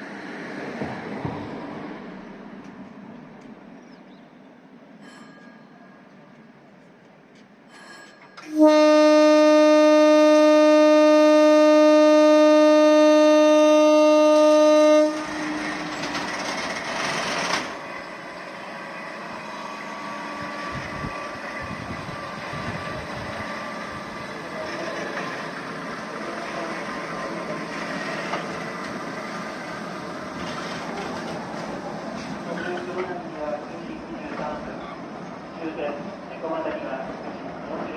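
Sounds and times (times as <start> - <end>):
train rolling on rails: 0.0 - 37.9
train horn blast: 8.4 - 16.3.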